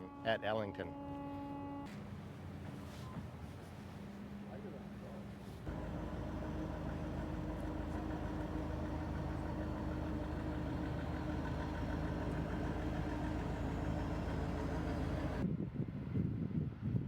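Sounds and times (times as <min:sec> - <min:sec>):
engine idling: 0:05.7 - 0:15.4.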